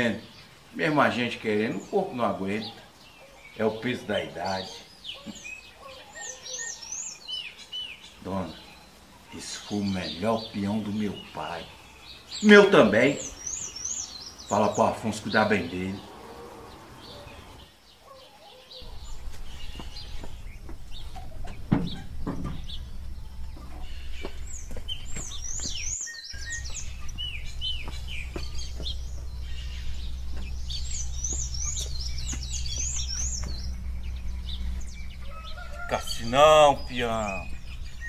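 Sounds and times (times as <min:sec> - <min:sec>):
small birds chirping: 0:00.0 - 0:38.0
steady low rumble: 0:18.8 - 0:38.0.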